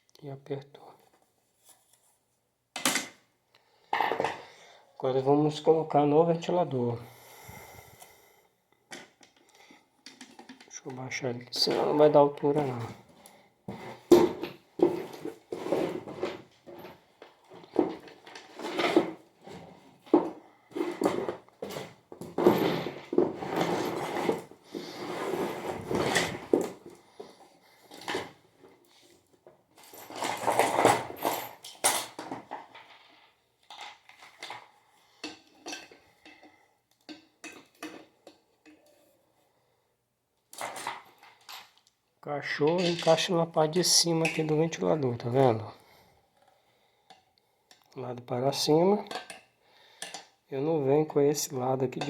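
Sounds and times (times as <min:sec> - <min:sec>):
metal parts rattling: 0:29.8 - 0:33.0, 0:42.6 - 0:43.3
metal parts clanking and clinking: 0:29.8 - 0:34.6, 0:42.6 - 0:43.4.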